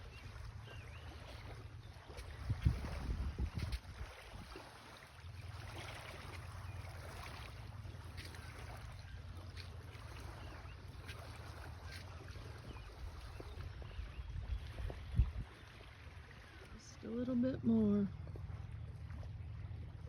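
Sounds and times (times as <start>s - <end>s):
wind rumble on microphone: 0.0s - 4.9s, 12.6s - 15.8s
faint lakeshore ambience: 0.0s - 20.0s.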